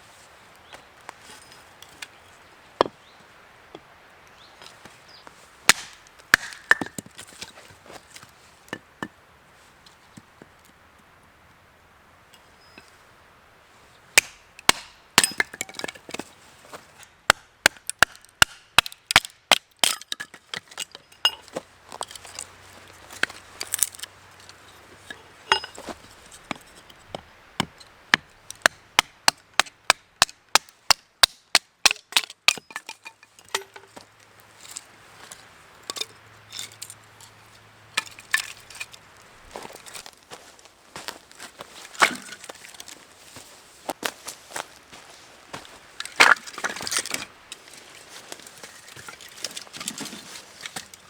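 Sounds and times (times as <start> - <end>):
wood being chopped: 5.6 - 7.6, 14.2 - 16.3, 17.2 - 21.5, 25.5 - 34.0, 39.5 - 43.0, 45.6 - 47.3.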